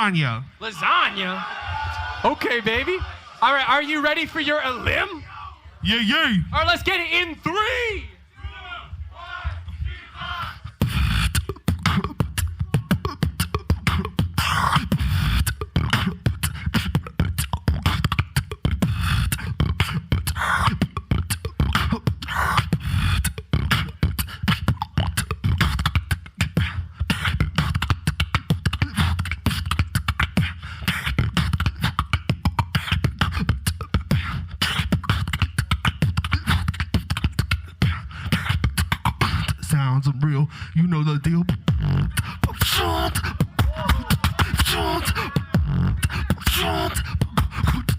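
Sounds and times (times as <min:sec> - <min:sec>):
beatboxing into microphone: 0:09.4 - 0:47.9.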